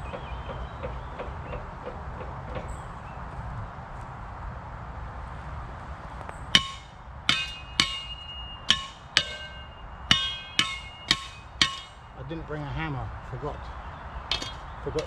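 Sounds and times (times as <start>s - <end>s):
shovel clanging on metal pole: 6.6s - 12.4s, 14.3s - 15.0s.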